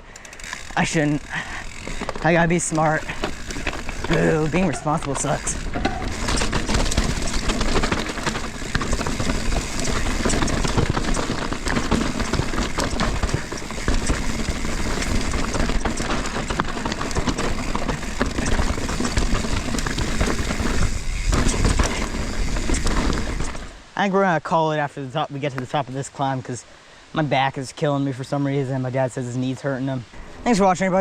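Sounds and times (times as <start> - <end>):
mountain bike rolling over rocks: 0.1 - 23.8.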